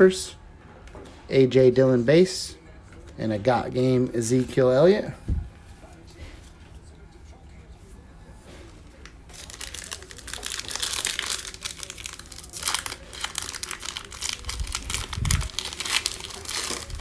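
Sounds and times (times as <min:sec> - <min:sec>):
wrapper tearing and crinkling: 0:09.3 - 0:17.0.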